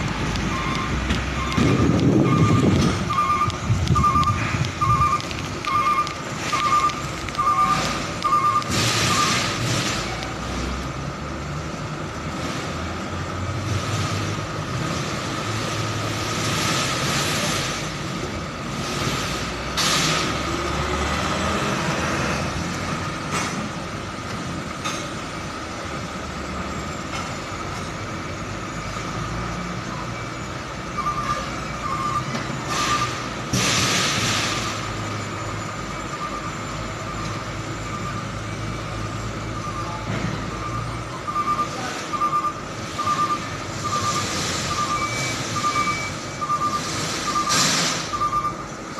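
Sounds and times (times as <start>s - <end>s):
truck engine idling: 0.0s - 12.4s
reversing alarm beeps: 0.1s - 10.4s, 26.5s - 48.9s.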